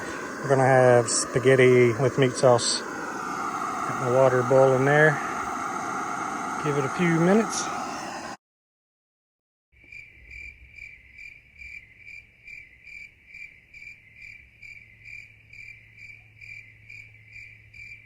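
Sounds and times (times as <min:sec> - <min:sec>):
cricket chirping: 0:09.8 - 0:18.0.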